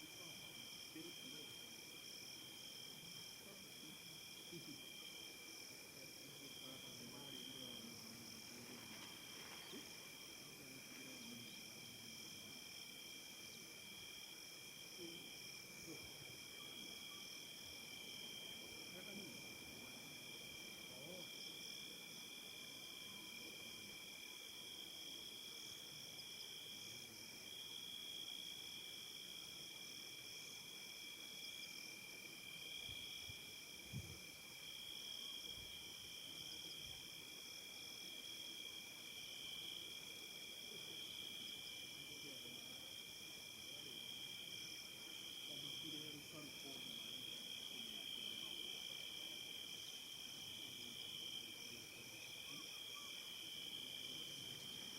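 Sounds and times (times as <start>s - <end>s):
insects trilling: 6.5s - 25.0s, 43.6s - 54.9s.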